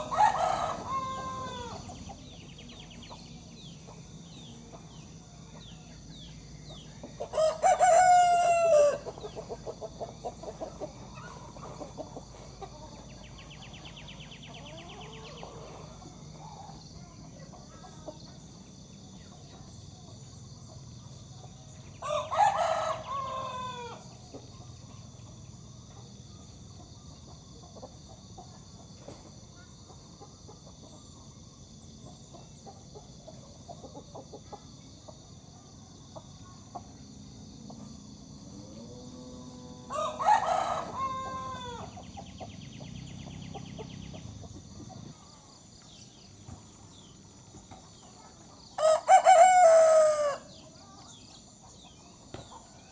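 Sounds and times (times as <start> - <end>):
rooster crowing: 0.0 - 2.1, 7.2 - 9.2, 21.9 - 24.2, 38.6 - 42.1, 48.8 - 50.6
chicken clucking: 0.0 - 13.7, 14.4 - 16.8, 26.7 - 31.2, 32.0 - 35.3.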